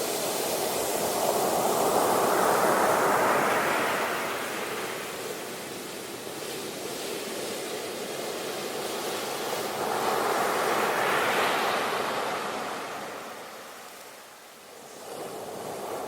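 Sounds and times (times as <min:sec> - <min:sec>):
ocean waves breaking on shore: 0:00.0 - 0:16.0.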